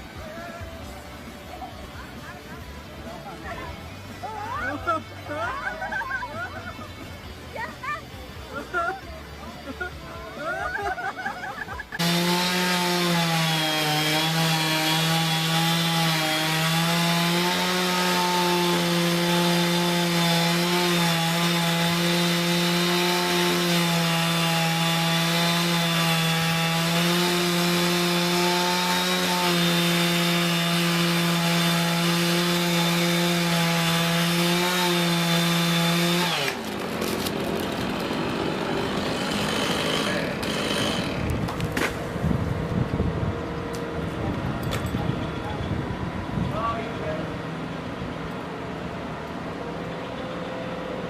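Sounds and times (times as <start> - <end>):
chainsaw cutting wood: 12.0 - 42.2.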